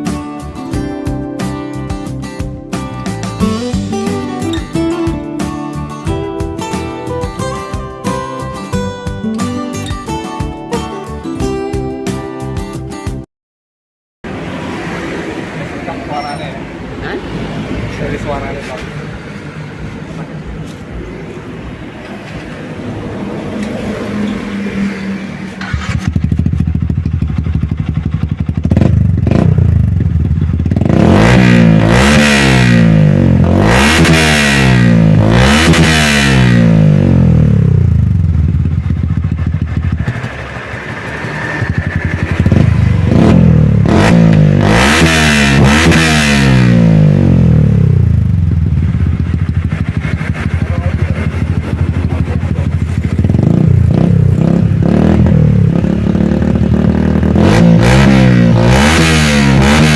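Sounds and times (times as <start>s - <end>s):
motorcycle engine idling and revving: 0.0s - 13.2s, 14.3s - 59.9s.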